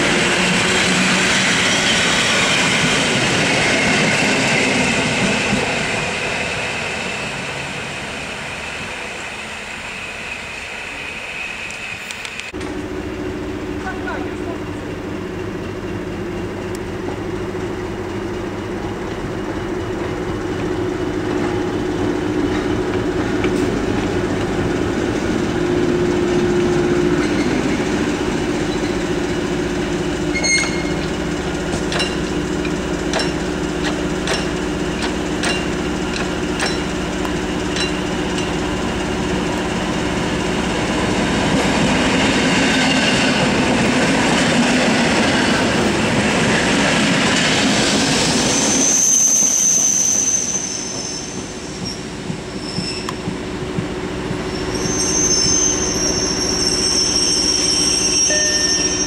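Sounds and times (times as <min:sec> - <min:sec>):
electric train humming: 0:00.0 - 0:59.0
wheels clicking over rail joints: 0:30.4 - 0:38.6.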